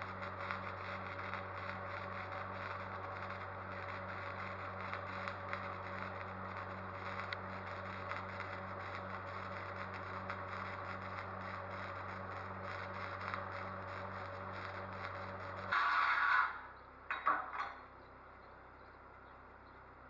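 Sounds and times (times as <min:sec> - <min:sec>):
faint light crackling: 0:00.0 - 0:15.8
machine pulsing hum: 0:00.0 - 0:17.1.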